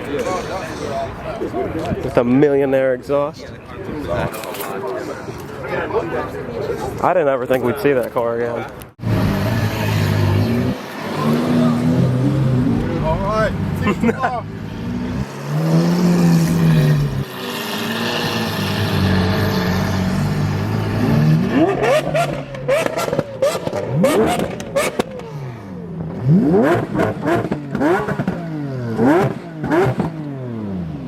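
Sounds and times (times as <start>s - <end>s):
sports car engine revving: 9.0s - 31.0s
exhaust cracks: 15.1s - 30.5s.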